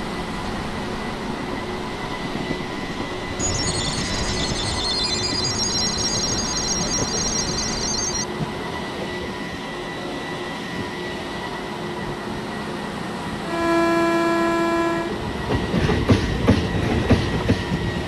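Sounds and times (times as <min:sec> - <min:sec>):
train rumbling: 0:00.0 - 0:18.0
high-pitched trilling ring: 0:03.4 - 0:08.3.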